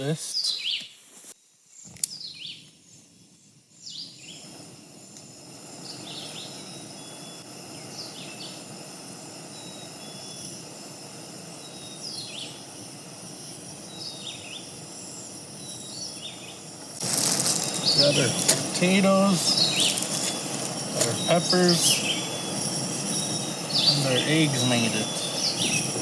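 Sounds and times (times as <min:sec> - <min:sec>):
birds chirping: 0:00.0 - 0:01.0, 0:01.8 - 0:26.0
background hiss: 0:00.0 - 0:26.0.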